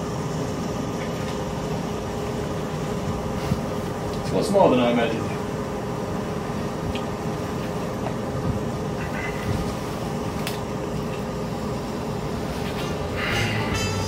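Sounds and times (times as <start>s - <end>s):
ventilation machinery droning: 0.0s - 14.0s.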